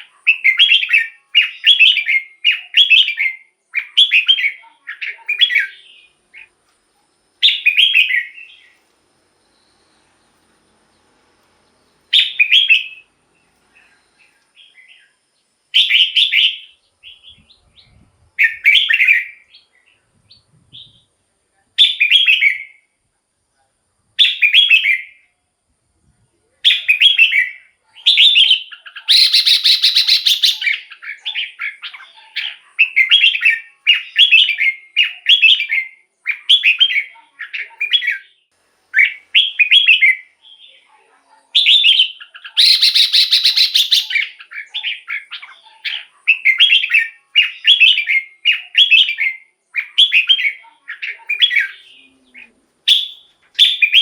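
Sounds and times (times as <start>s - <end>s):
bulbul singing whistled phrases: 0.0s - 6.5s, 7.4s - 8.8s, 12.0s - 21.2s, 21.8s - 22.9s, 24.2s - 25.3s, 26.6s - 40.9s, 41.5s - 54.0s
harsh bird chattering: 26.7s - 34.2s, 41.6s - 49.2s.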